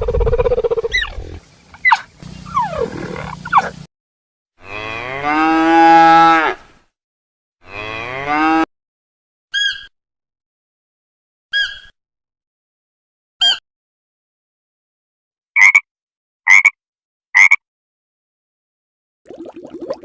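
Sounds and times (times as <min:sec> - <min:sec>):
cow mooing: 0:02.5 - 0:03.8, 0:04.6 - 0:06.6, 0:07.6 - 0:08.7.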